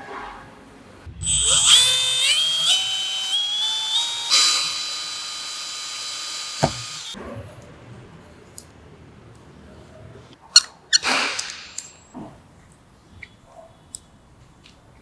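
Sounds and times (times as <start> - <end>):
electric hand planer whining: 1.2 - 7.2
sharp click: 1.2 - 7.2.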